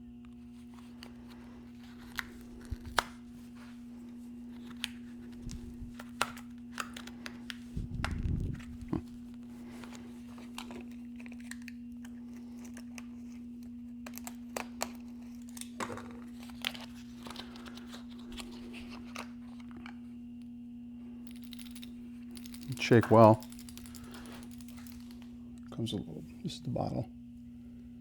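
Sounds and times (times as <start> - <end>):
steady low hum: 0.0 - 28.0
packaging crinkling and tearing: 0.6 - 3.2, 9.9 - 19.8.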